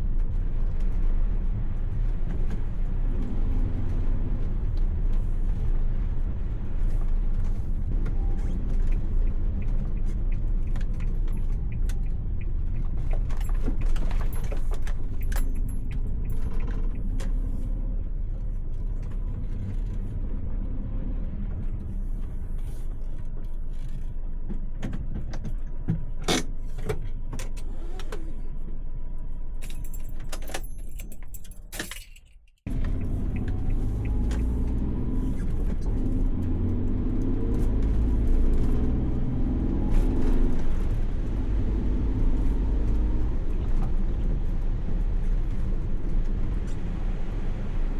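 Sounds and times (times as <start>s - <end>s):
van engine and road rumble: 0.0s - 47.9s
small rattles and jingles: 12.8s - 17.5s, 29.6s - 32.7s.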